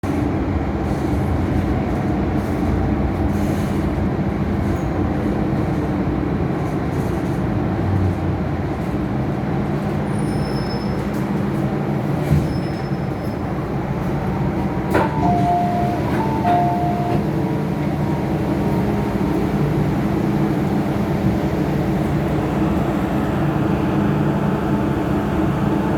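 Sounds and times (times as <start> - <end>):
metro train rumbling: 0.0 - 25.9
two-note electronic chime: 15.1 - 17.2.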